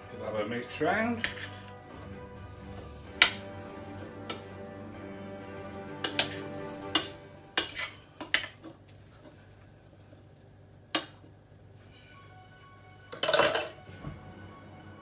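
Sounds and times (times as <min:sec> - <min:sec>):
background music: 0:00.0 - 0:08.1, 0:11.9 - 0:15.0.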